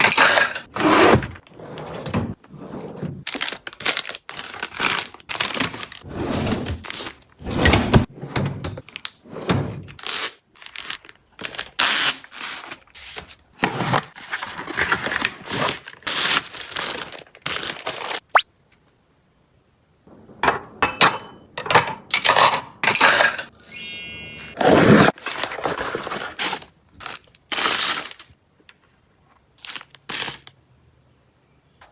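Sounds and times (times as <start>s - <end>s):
wrappers crinkling and rustling: 3.2s - 6.0s, 10.0s - 13.2s, 14.1s - 18.2s, 25.2s - 30.6s.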